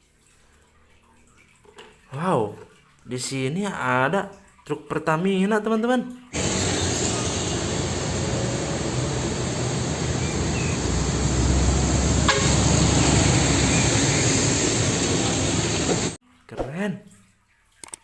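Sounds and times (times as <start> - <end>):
motor vehicle running: 6.4 - 16.2.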